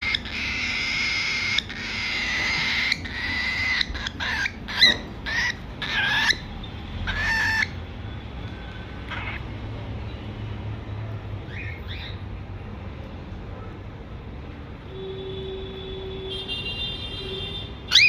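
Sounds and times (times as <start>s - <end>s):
baby cockatiel begging calls: 0.0s - 7.8s, 9.1s - 9.4s, 11.5s - 12.2s.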